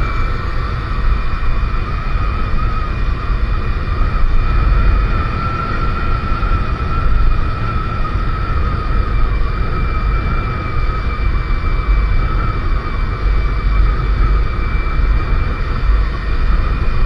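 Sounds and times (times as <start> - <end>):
motorcycle engine whine: 0.0 - 17.0
wind rumble on microphone: 0.0 - 17.0.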